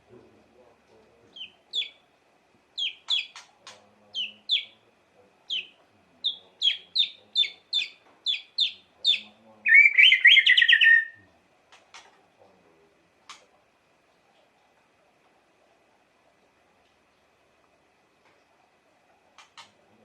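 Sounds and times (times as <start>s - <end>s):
bird whistling song: 1.3s - 2.0s, 2.8s - 3.5s, 4.1s - 4.8s, 5.5s - 11.2s
rapid bird warbling: 1.3s - 2.1s, 2.7s - 12.2s, 19.2s - 19.8s
bird clicks: 2.8s - 3.9s, 11.7s - 12.2s, 13.3s - 13.5s, 19.4s - 19.8s.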